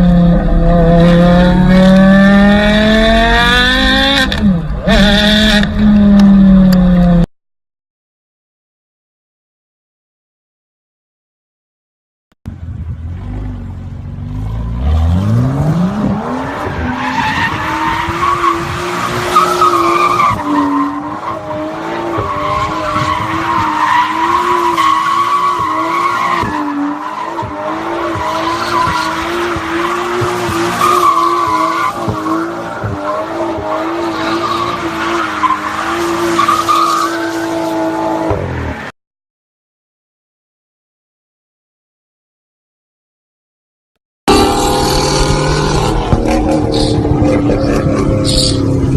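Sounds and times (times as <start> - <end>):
car engine revving: 0.0 - 7.3, 44.3 - 48.9.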